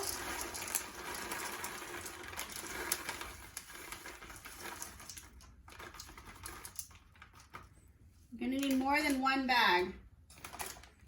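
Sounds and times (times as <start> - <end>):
chocolate chips pouring into bowl: 0.0 - 7.2.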